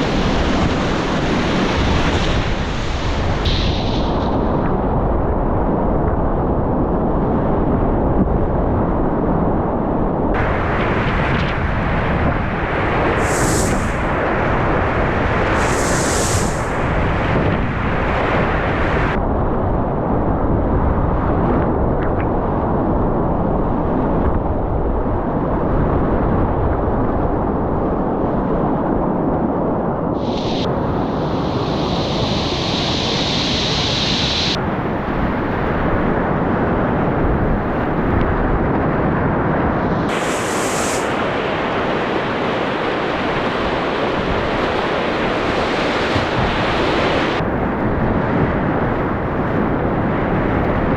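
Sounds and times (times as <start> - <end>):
bright hiss of water: 2.0 - 4.6, 12.8 - 17.0, 30.2 - 34.6, 40.1 - 41.5.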